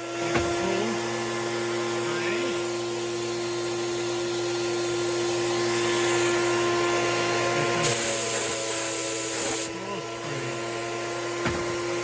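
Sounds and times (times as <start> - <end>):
turbine whine: 0.0 - 12.0
spray gun air hiss: 7.8 - 9.7.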